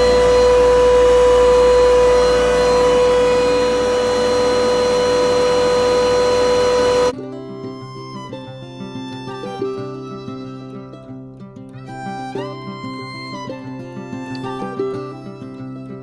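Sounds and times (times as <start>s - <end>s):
chiller machine whining: 0.0s - 7.1s
plucked-string music: 7.2s - 16.0s.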